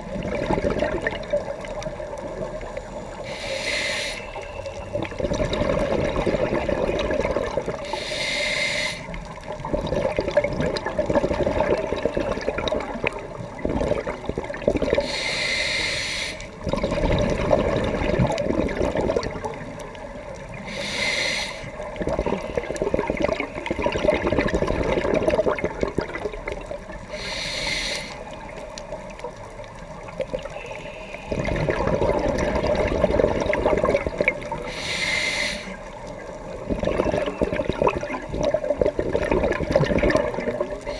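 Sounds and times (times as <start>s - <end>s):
exhaled air bubbling: 0.0s - 40.9s
regulator hiss: 2.4s - 4.8s, 7.8s - 9.3s, 15.0s - 16.6s, 20.5s - 22.7s, 27.1s - 28.7s, 34.6s - 36.0s.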